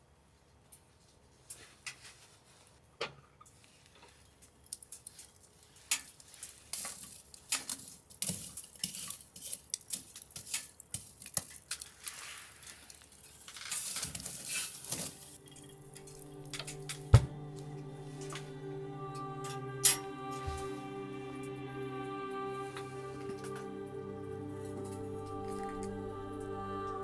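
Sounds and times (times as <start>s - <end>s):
scraping rustles: 3.5s - 15.7s.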